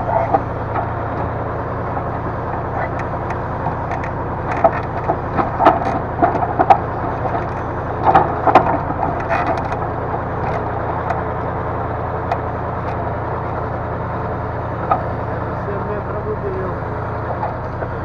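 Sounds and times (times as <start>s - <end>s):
diesel engine running: 0.0s - 18.0s
logs knocking and clacking: 0.1s - 16.2s.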